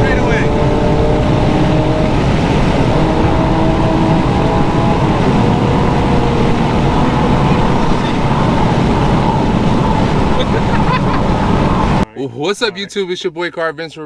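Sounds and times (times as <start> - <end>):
car engine droning through exhaust: 0.0 - 12.0.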